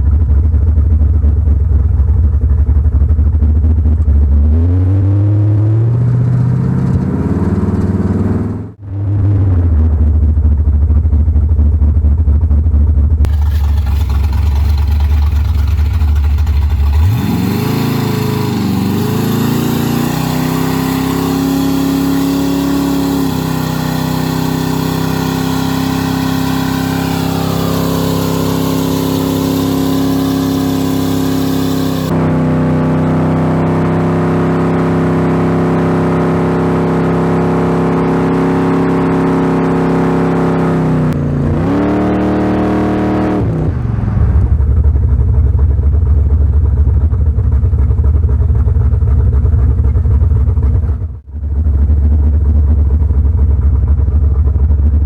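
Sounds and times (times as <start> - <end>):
car engine revving: 4.0 - 10.2, 13.2 - 44.7.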